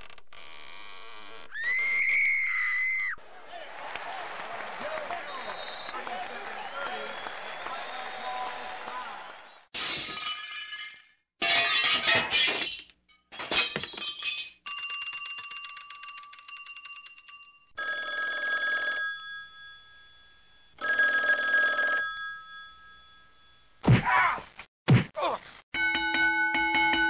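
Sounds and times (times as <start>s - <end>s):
bell ringing: 14.7s - 23.8s, 25.8s - 27.0s.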